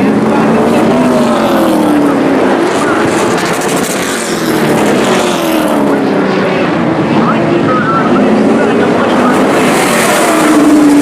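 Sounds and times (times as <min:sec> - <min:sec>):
race truck engines passing: 0:00.0 - 0:11.0.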